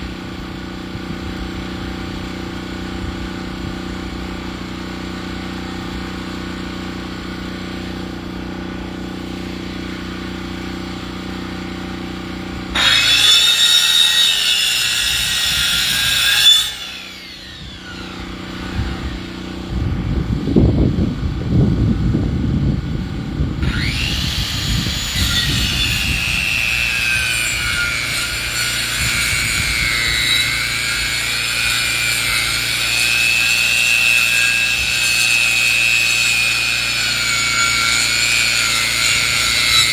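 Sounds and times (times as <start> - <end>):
power saw motor running: 4.6 - 20.0, 23.6 - 39.9
saw blade whining through wood: 9.0 - 20.0, 23.6 - 39.9
low rumbling: 14.3 - 28.4.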